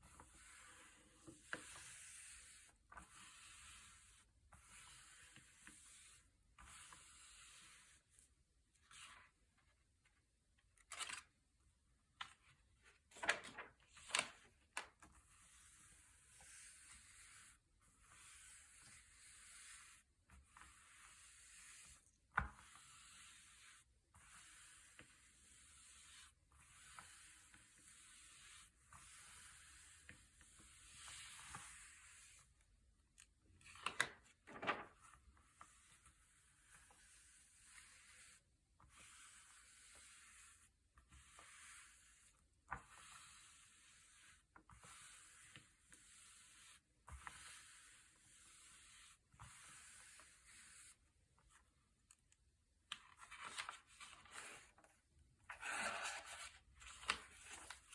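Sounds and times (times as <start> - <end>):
paper pages turning: 10.8 - 11.3, 12.2 - 14.9, 33.6 - 35.1, 52.9 - 54.9, 55.5 - 57.9
paper rustling: 10.9 - 11.3, 12.2 - 14.9, 33.6 - 35.1, 52.9 - 54.9, 55.5 - 57.9.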